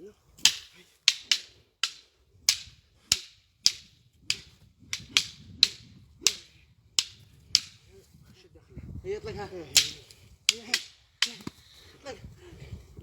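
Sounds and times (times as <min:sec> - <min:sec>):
wooden sticks clacking: 0:00.4 - 0:07.9, 0:09.7 - 0:11.8.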